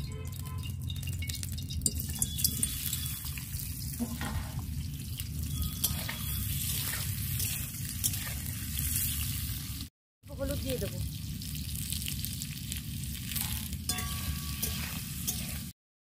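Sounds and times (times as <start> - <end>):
metal spatula clinking on pan: 0.1 - 3.2, 5.5 - 8.4, 13.4 - 15.7
potatoes sizzling in oil: 1.3 - 15.8.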